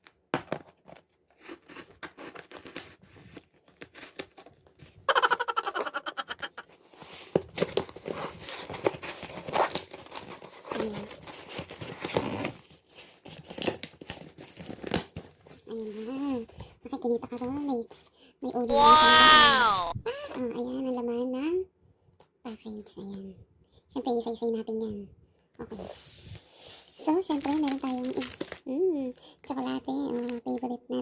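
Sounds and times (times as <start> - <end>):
packaging rustling and tearing: 0.8 - 4.9, 6.9 - 15.6, 27.1 - 28.7.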